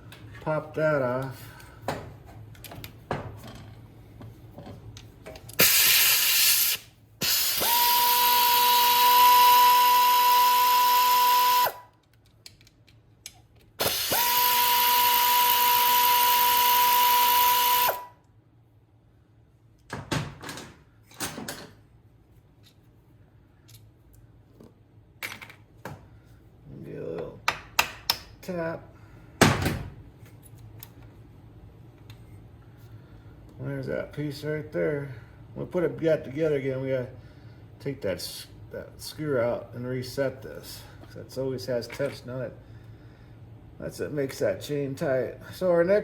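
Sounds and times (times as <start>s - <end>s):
power drill whining: 7.2s - 11.8s, 13.8s - 18.1s.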